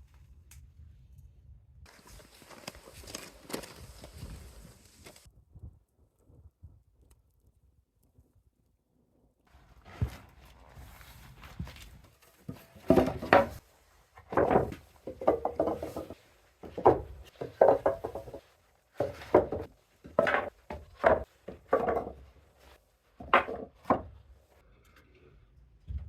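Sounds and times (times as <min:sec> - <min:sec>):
wood knocking and scraping on wood: 0:11.5 - 0:24.4.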